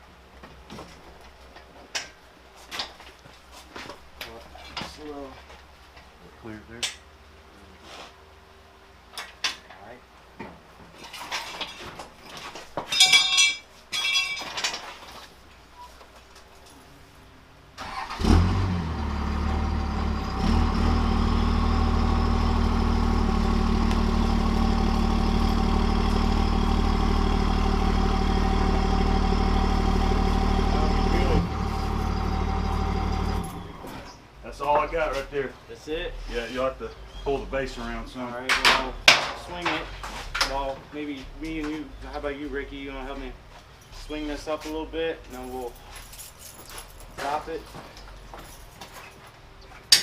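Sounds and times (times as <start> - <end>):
metal clanks: 12.8 - 15.0
vehicle engine starting and running: 17.8 - 34.2
jingling rattle: 45.3 - 47.2.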